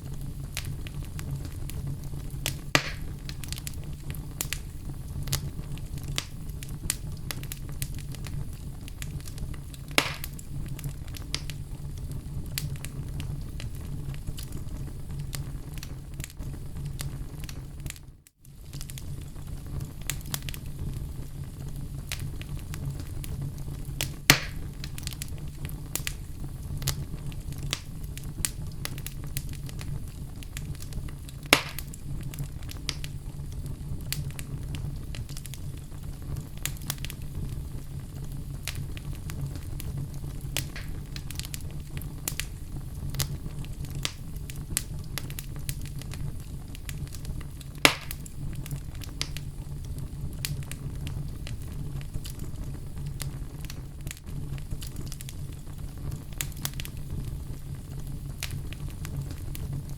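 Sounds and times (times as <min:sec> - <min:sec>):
fire crackling: 0:00.0 - 0:59.9
flames rumbling: 0:00.0 - 0:59.9
loud sharp pops: 0:02.4 - 0:03.4, 0:09.9 - 0:10.4, 0:24.0 - 0:24.7, 0:31.5 - 0:32.0, 0:40.6 - 0:41.4, 0:47.8 - 0:48.3.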